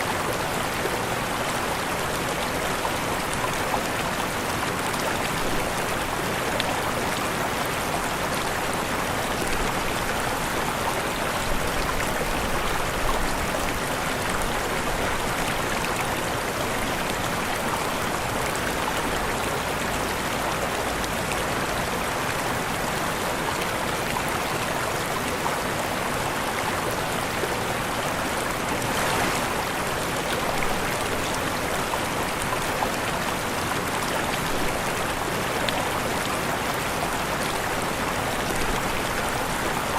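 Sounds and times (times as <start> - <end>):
waterfall rushing: 27.7 - 39.9.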